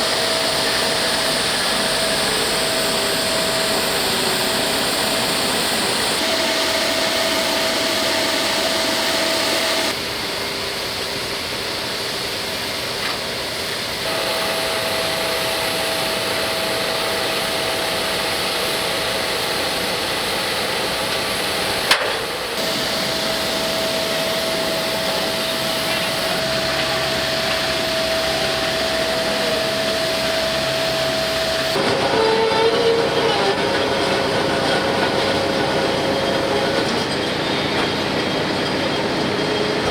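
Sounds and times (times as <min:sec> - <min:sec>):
aircraft engines whining: 0:00.0 - 0:39.9.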